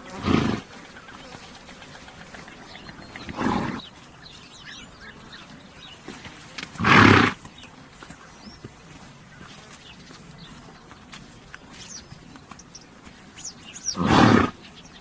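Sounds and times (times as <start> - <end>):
horse snorting: 0.0 - 3.9, 6.0 - 7.6, 13.8 - 14.6.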